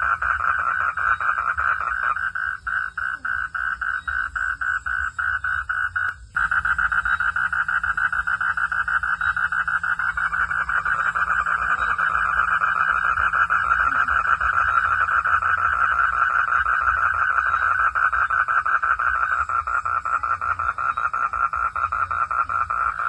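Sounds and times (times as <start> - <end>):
frogs calling in pulses: 0.0 - 23.0
low rumble: 4.8 - 16.7.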